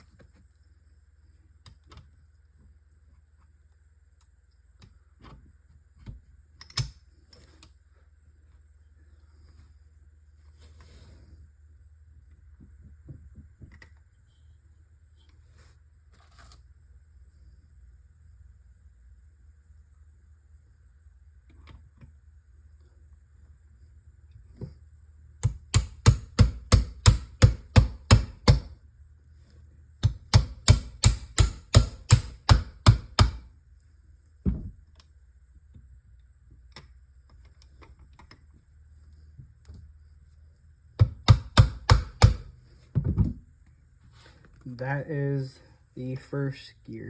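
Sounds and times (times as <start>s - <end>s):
sharp taps on metal parts: 30.0s - 33.4s.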